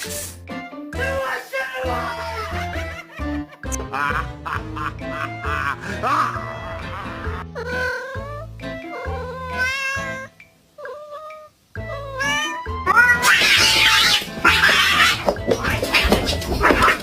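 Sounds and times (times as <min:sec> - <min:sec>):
background music with bass: 0:02.3 - 0:09.3
cat meowing and yowling: 0:07.6 - 0:17.0.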